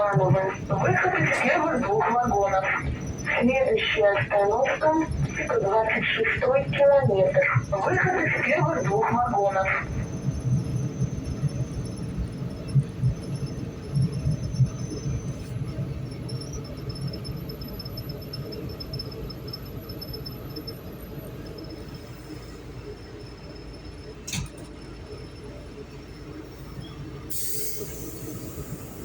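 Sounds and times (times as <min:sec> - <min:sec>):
train running low rumble: 0:00.0 - 0:29.0.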